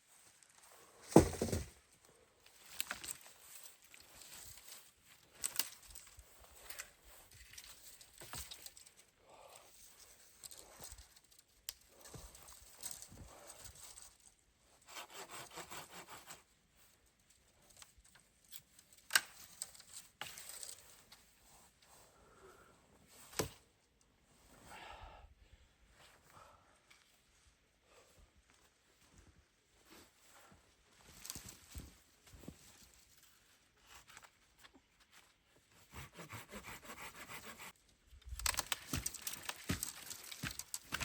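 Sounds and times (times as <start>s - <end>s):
hand saw strokes: 35.8s - 37.7s
wood cracking: 38.2s - 41.0s.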